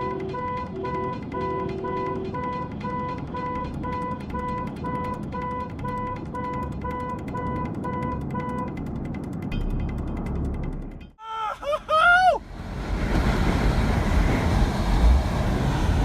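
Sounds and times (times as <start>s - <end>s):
low rumbling background: 12.4s - 16.0s.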